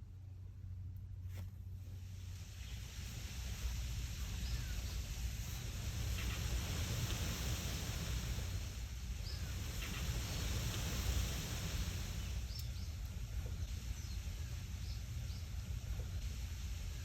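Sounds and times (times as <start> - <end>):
steady hiss: 0.0 - 17.0
wind rustling leaves: 1.3 - 17.0
wind rumble on microphone: 1.7 - 17.0
bird chirps: 12.1 - 15.6.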